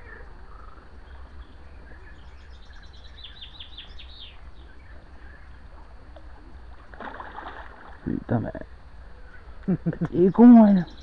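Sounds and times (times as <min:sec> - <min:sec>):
small bird singing: 0:00.0 - 0:05.7, 0:09.2 - 0:11.0
faint bird chirps: 0:00.0 - 0:05.8, 0:09.0 - 0:11.0
steady low rumble: 0:00.0 - 0:11.0.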